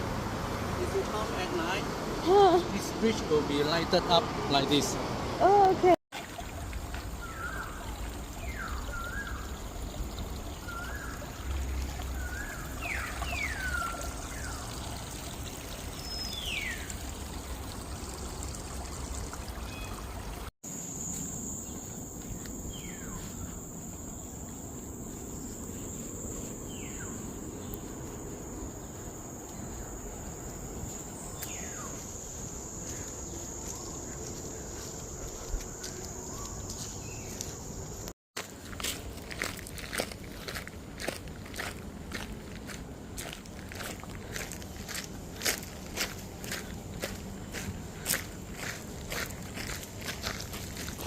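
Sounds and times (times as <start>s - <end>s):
water trickling: 5.6s - 20.5s
birds chirping: 6.9s - 20.5s, 21.4s - 38.1s
high-pitched insect buzz: 20.7s - 27.8s.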